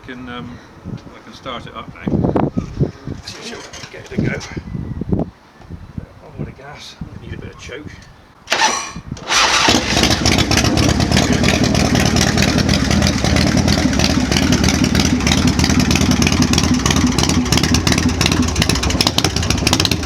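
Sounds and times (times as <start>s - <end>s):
motorcycle engine running: 9.3s - 20.0s.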